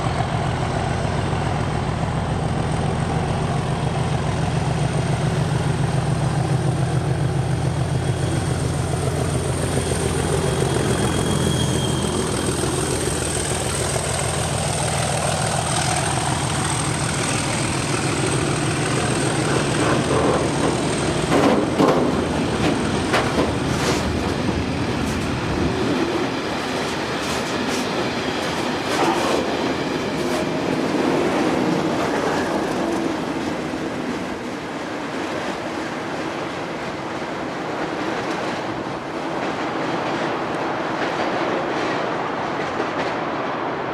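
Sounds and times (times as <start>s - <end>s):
diesel locomotive engine drone: 0.0s - 43.9s
high wheel squeal: 9.5s - 13.5s
wheels clattering over rail joints: 10.8s - 34.4s.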